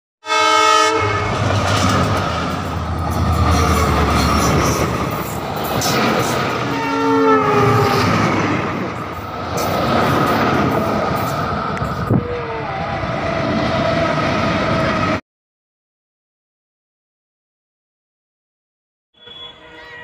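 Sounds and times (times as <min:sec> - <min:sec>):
locomotive horn: 0:00.2 - 0:02.0, 0:06.6 - 0:08.2, 0:19.2 - 0:20.0
locomotive engine rumble: 0:01.2 - 0:12.4
train wheels clattering on rails: 0:01.3 - 0:06.8, 0:08.0 - 0:12.1.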